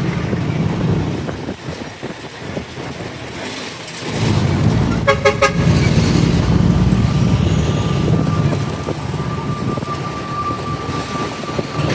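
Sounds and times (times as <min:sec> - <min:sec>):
street traffic: 0:00.0 - 0:11.9
motorcycle engine pulling away: 0:04.0 - 0:10.5
vehicle horn toots: 0:04.9 - 0:06.5.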